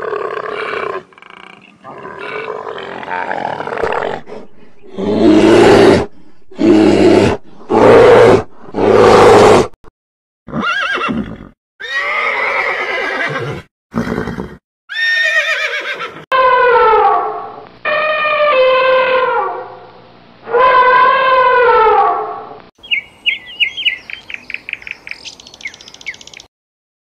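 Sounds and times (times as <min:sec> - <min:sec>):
horse whinnying: 0:10.5 - 0:16.2.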